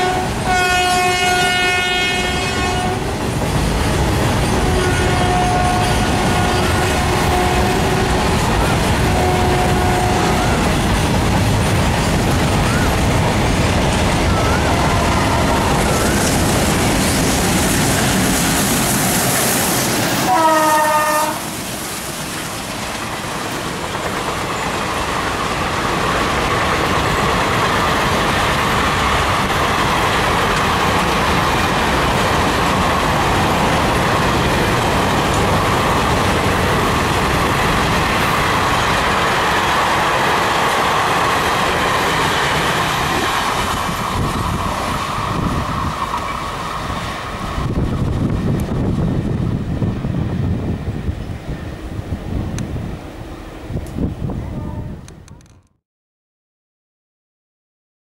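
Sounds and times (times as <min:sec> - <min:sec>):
train horn blast: 0:00.0 - 0:03.1, 0:04.6 - 0:10.8, 0:20.2 - 0:21.5, 0:54.4 - 0:55.5
train wheels on rails: 0:00.0 - 0:54.4.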